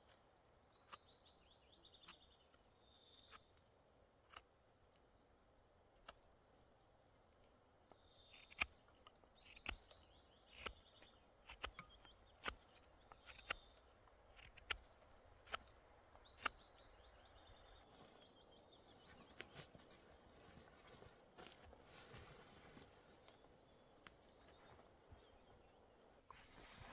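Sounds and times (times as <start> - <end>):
faint bird chirps: 0.0 - 3.6, 7.9 - 14.5, 15.2 - 21.2, 22.7 - 26.9.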